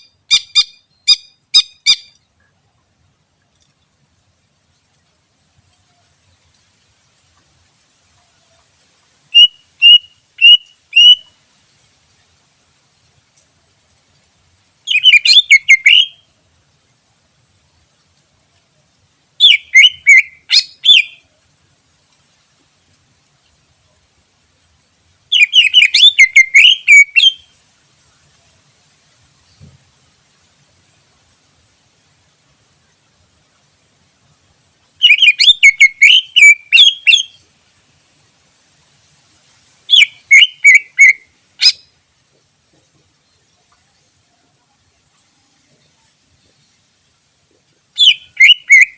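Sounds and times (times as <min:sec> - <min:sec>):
bird singing whistled phrases: 0:09.3 - 0:11.3, 0:14.9 - 0:16.2, 0:19.4 - 0:21.2, 0:25.3 - 0:27.5, 0:35.0 - 0:37.4, 0:39.9 - 0:41.9, 0:48.0 - 0:48.9.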